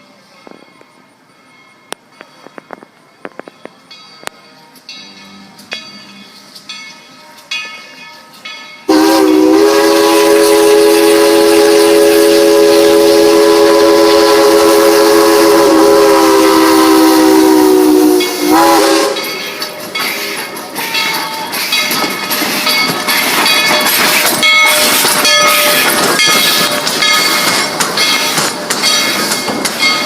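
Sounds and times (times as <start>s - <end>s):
steam locomotive whistle: 8.9s - 28.5s.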